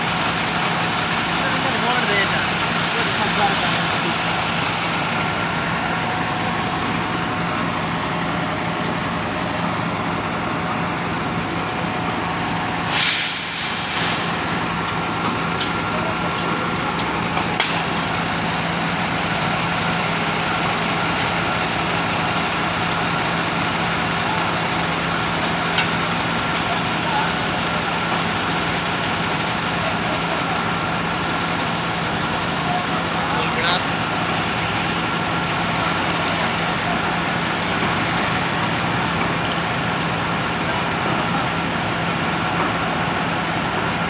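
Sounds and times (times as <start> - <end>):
truck engine running: 0.0 - 44.0
air hiss burst: 3.2 - 4.0, 12.9 - 14.6.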